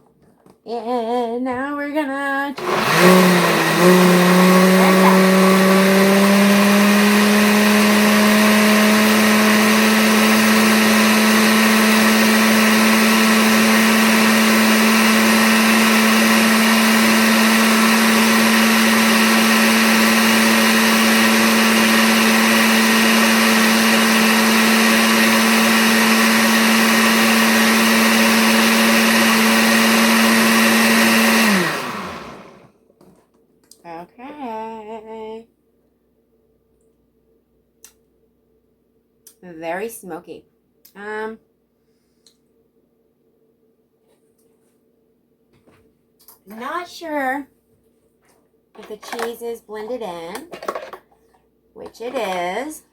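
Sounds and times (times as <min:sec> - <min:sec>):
blender motor running: 0:02.6 - 0:32.7.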